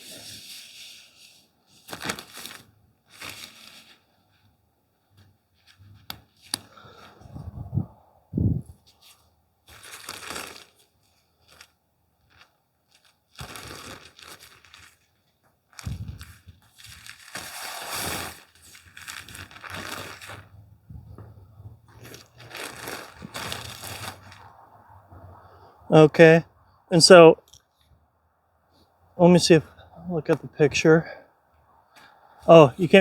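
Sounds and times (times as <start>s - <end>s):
tent fabric rustling: 0.0s - 4.6s, 8.6s - 24.5s.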